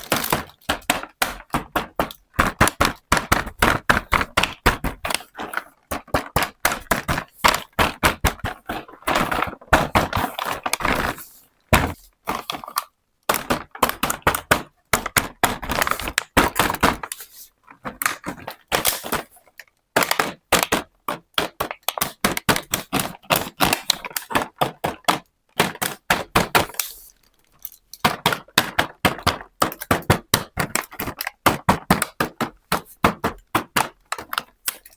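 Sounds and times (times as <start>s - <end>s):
plastic toy pieces clicking: 21.4s - 34.9s.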